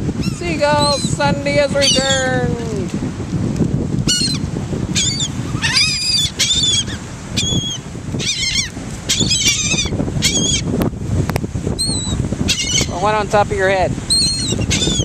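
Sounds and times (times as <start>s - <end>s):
seagulls calling: 0.2s - 2.4s, 4.1s - 10.7s, 11.8s - 13.2s, 14.1s - 15.0s.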